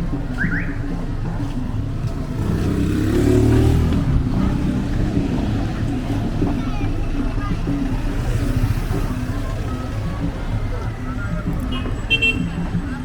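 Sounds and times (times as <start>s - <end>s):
street rumble: 0.0s - 13.0s
vehicle engine passing by: 2.0s - 11.6s.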